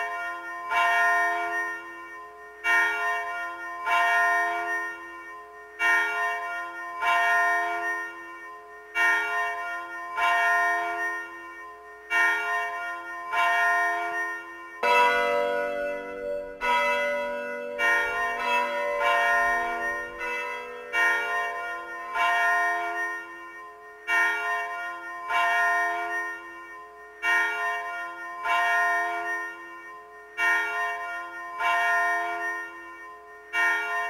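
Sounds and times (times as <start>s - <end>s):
bells ringing: 0.0s - 34.0s
low heavy bell ringing: 14.8s - 22.5s.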